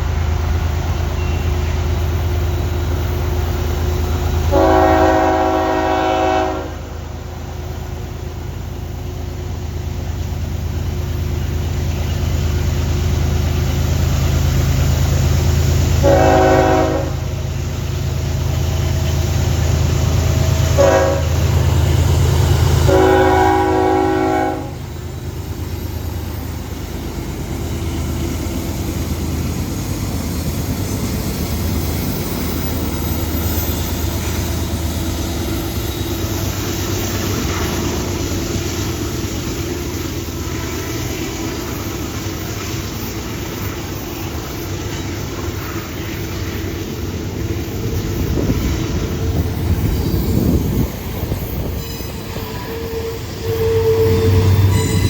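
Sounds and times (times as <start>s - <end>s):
freight train passing: 0.0s - 55.0s
locomotive horn chord: 4.5s - 7.1s, 16.0s - 17.3s, 20.7s - 21.5s, 22.8s - 24.9s.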